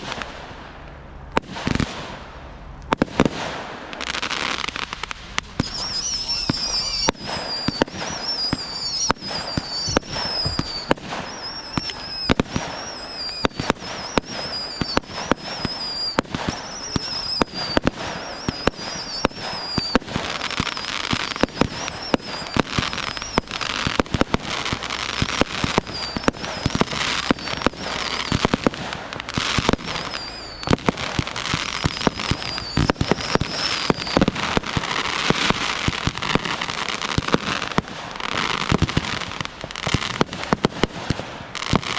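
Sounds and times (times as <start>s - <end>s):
crackling hiss of fireworks: 0.0s - 41.9s
fireworks bangs: 0.0s - 41.9s
high falling whistles: 5.5s - 28.7s, 29.3s - 36.2s.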